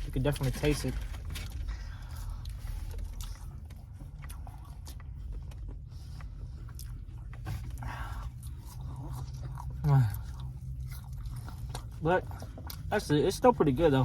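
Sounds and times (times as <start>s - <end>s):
steady low hum: 0.0s - 14.0s
person chewing with mouth clicks: 1.5s - 12.9s.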